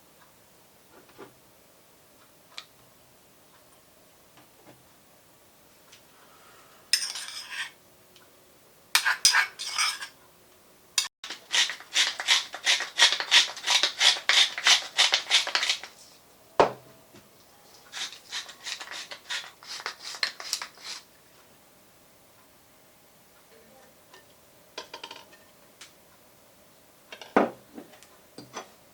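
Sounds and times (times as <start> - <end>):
metal utensil scraping a bowl: 6.9 - 7.8, 9.0 - 10.2, 11.3 - 15.9, 17.9 - 21.1.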